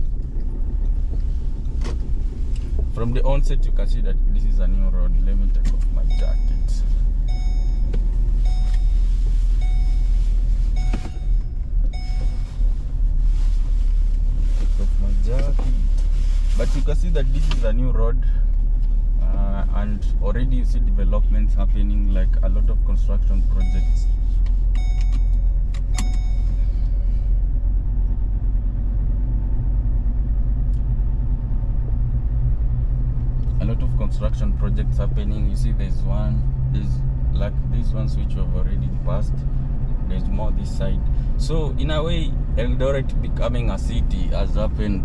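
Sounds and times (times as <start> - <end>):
car engine and road rumble: 0.0 - 45.0
in-car warning chime: 6.0 - 12.8, 23.6 - 26.9.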